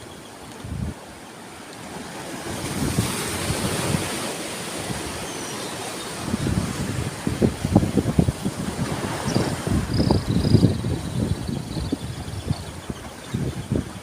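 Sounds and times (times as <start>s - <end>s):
sea waves breaking: 0.0s - 14.0s
wind buffeting microphone: 0.6s - 1.0s, 2.4s - 5.2s, 6.2s - 14.0s.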